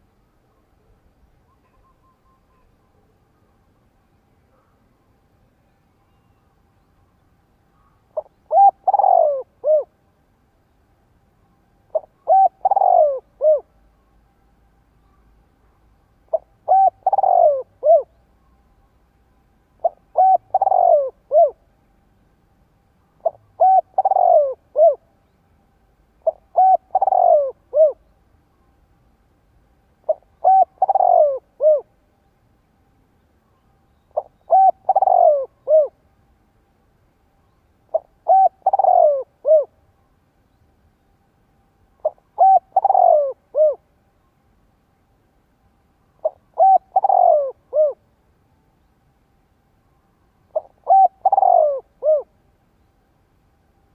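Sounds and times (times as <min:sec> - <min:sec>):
dove cooing: 0:07.8 - 0:10.0, 0:11.9 - 0:13.8, 0:16.3 - 0:18.2, 0:19.8 - 0:21.6, 0:23.2 - 0:25.1, 0:26.2 - 0:28.1, 0:30.0 - 0:31.9, 0:34.1 - 0:36.0, 0:37.9 - 0:39.8, 0:42.0 - 0:43.8, 0:46.2 - 0:48.0, 0:50.5 - 0:52.3.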